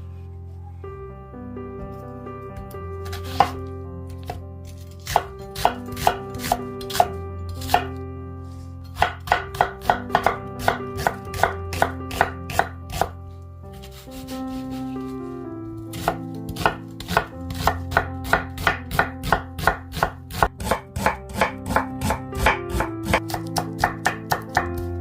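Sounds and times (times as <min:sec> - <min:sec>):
soft background music: 0:00.0 - 0:25.0
knife chopping on cutting board: 0:03.0 - 0:03.6, 0:05.0 - 0:08.0, 0:09.0 - 0:13.1, 0:15.9 - 0:24.9.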